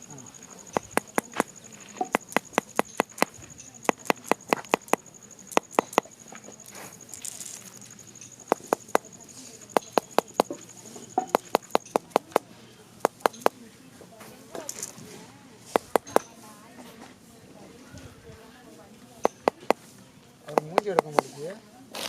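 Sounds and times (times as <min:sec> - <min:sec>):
high insect trill: 0:00.0 - 0:12.4
sharp taps or knocks: 0:00.7 - 0:06.1, 0:08.4 - 0:09.1, 0:09.7 - 0:10.6, 0:11.2 - 0:12.4, 0:13.0 - 0:13.6, 0:15.7 - 0:16.3, 0:19.2 - 0:19.8, 0:20.5 - 0:21.3.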